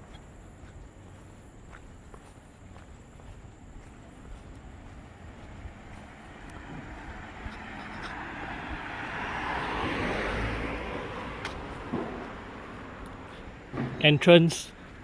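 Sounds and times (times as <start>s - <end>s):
car driving past: 5.0s - 14.0s.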